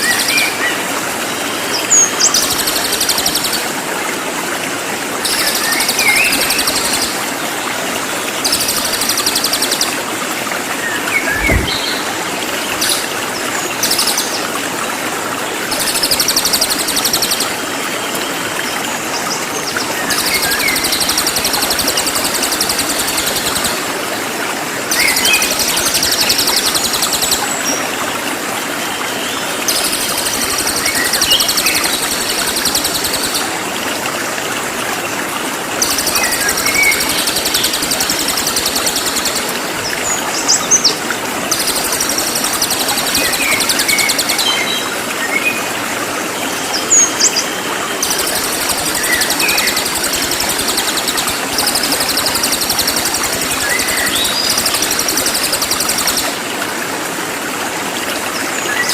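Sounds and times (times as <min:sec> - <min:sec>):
running water: 0:00.0 - 0:58.9.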